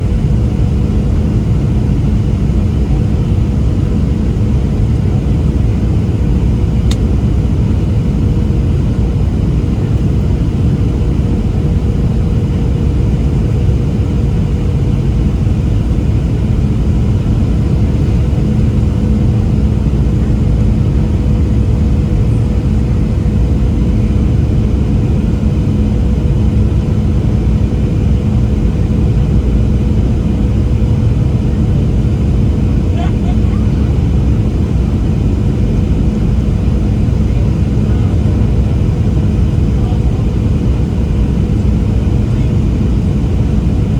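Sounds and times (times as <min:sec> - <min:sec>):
constant droning hum: 0:00.0 - 0:43.9
deep rumble of airflow and engines: 0:00.0 - 0:43.9.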